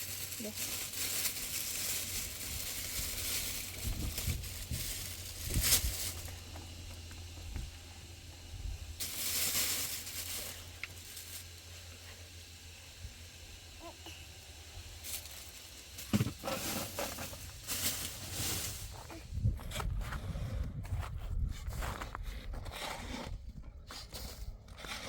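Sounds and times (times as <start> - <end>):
hissing rustling noise: 0.0 - 14.0, 14.7 - 19.3
steady low hum: 0.0 - 24.8.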